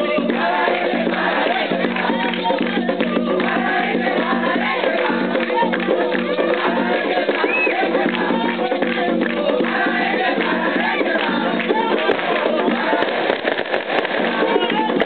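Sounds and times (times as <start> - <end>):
rhythmic drumming: 0.0 - 15.0
group of voices chanting: 0.1 - 2.3.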